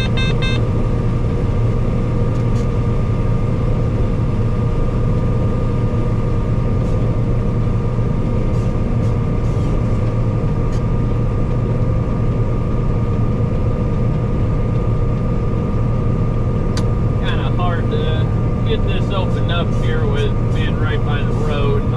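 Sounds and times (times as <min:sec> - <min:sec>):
combine harvester engine drone: 0:00.0 - 0:21.9
whining threshing machinery: 0:00.0 - 0:21.9.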